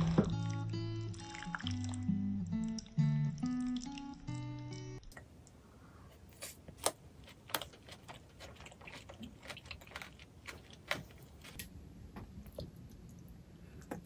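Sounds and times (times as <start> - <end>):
close-miked chewing: 6.4 - 11.7.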